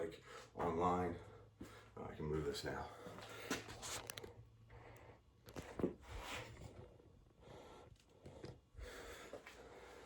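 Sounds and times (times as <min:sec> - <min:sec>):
soft breaths: 0:02.8 - 0:10.0.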